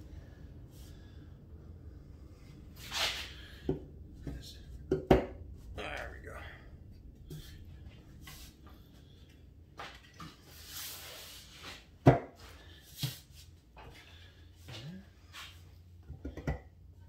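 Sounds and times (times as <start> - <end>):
tools and parts knocking: 16.1 - 16.7.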